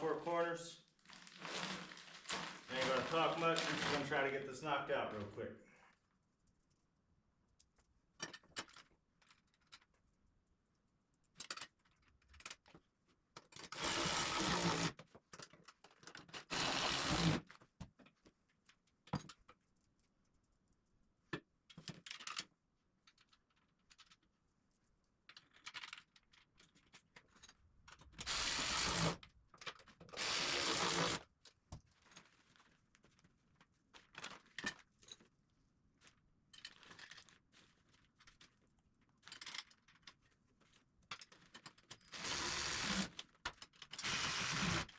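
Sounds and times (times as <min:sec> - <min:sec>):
power tool fastening bolts: 0:13.6 - 0:14.9, 0:16.3 - 0:17.4, 0:28.2 - 0:29.2, 0:30.1 - 0:31.2, 0:42.1 - 0:43.2, 0:43.9 - 0:44.9.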